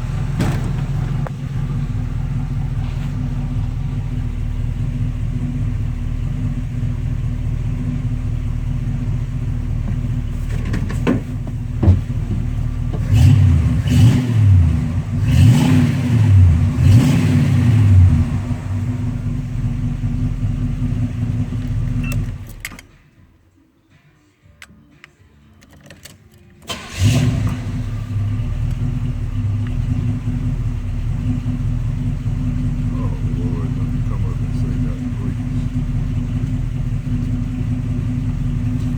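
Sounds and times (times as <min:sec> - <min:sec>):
car engine idling and revving: 0:00.0 - 0:23.2, 0:26.7 - 0:38.9
car engine starting: 0:00.0 - 0:23.4, 0:25.9 - 0:38.9.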